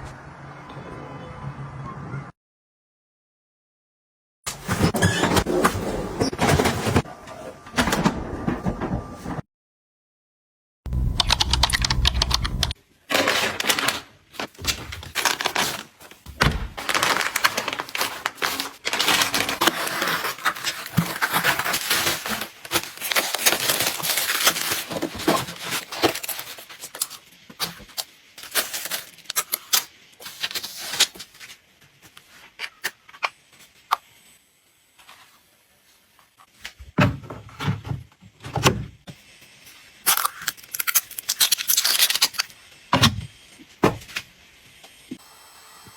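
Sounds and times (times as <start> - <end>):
packaging rustling and clicking: 11.7 - 31.6, 40.1 - 42.6.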